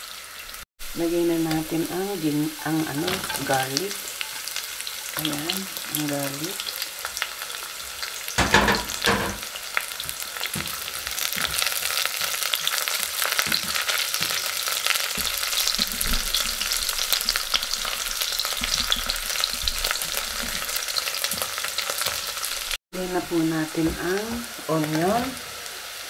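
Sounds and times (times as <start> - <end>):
garlic sizzling in hot oil: 0.0 - 26.0
loud knocks: 8.4 - 9.5.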